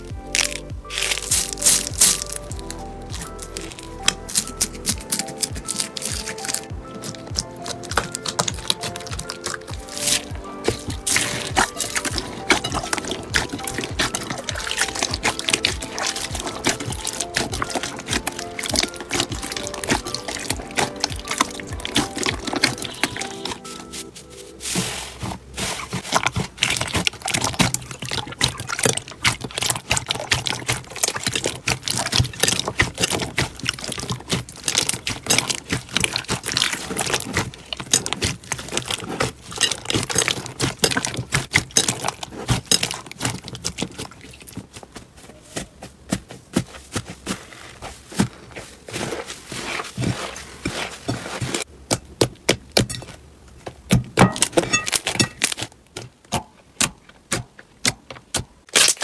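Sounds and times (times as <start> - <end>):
slime squished by hand: 0.0 - 51.7.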